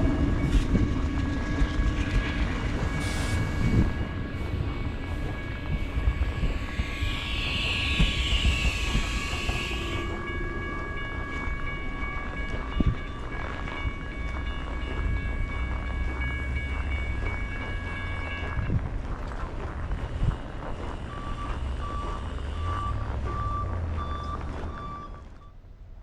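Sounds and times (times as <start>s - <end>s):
high whine: 0.0s - 24.8s
locomotive engine rumble: 0.0s - 25.5s.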